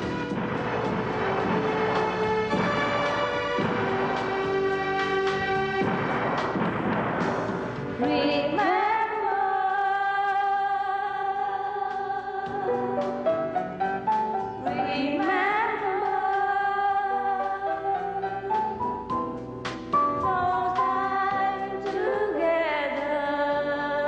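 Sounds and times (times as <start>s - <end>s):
instrumental accompaniment: 0.0s - 8.7s, 12.5s - 16.4s.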